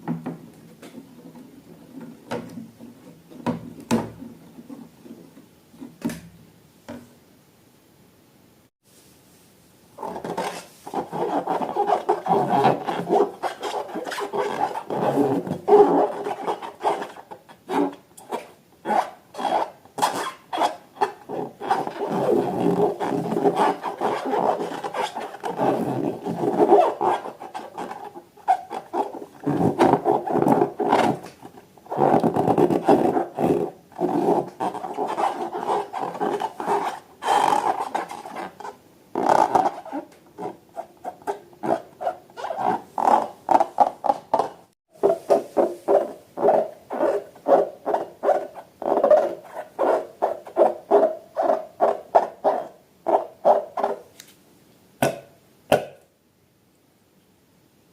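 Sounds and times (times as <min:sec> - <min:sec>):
rubber balloons rubbed by hand: 0:10.0 - 0:54.1.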